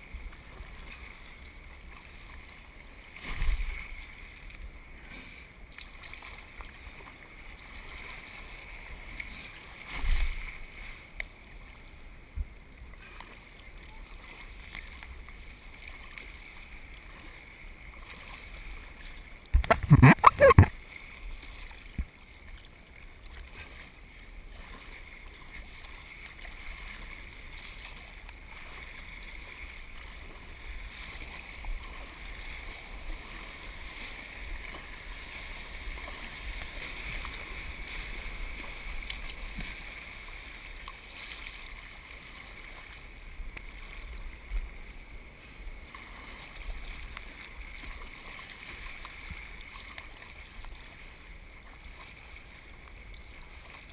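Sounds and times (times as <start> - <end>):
water washing around a kayak: 0.0 - 53.9.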